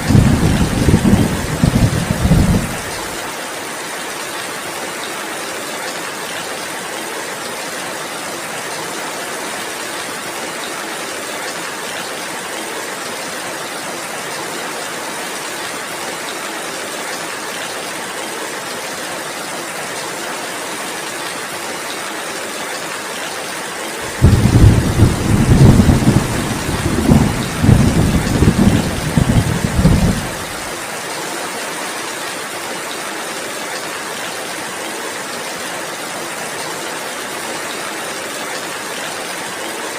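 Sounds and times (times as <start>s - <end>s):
thunder rumbling: 0.0s - 3.1s, 24.0s - 30.7s
heavy rain falling: 0.0s - 39.9s.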